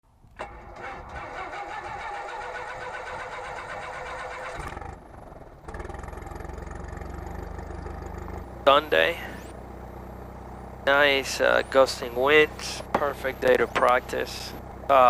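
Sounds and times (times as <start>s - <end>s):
aircraft piston engine starting: 0.4s - 5.0s.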